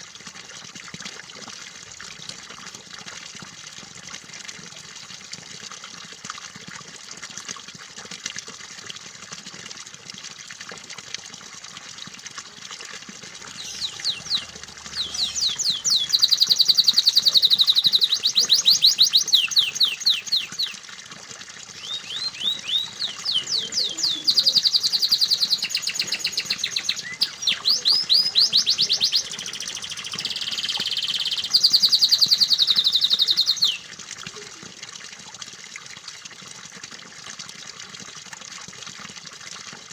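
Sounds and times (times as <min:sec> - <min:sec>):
running water: 0:00.0 - 0:39.9
canary song trills: 0:13.5 - 0:20.8, 0:21.8 - 0:33.9.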